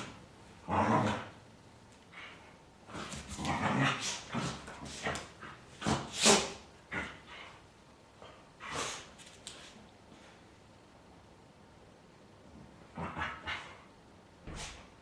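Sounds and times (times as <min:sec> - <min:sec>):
dogs play-growling and yipping: 0:00.0 - 0:01.4, 0:02.2 - 0:07.6, 0:12.8 - 0:14.7.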